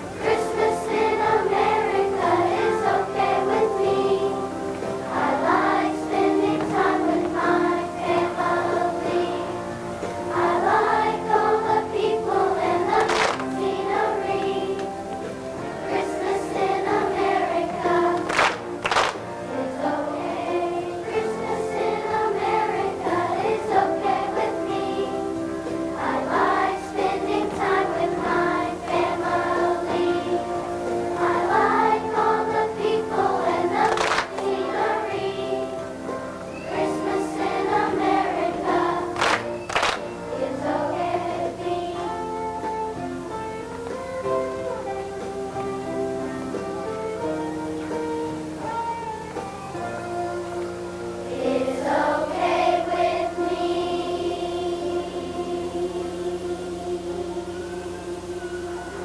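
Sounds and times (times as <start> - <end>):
children's choir singing: 0.0 - 59.0
musical accompaniment: 0.0 - 59.0
sharp clicks: 13.0 - 13.5, 18.2 - 19.2, 33.8 - 34.4, 39.2 - 40.1.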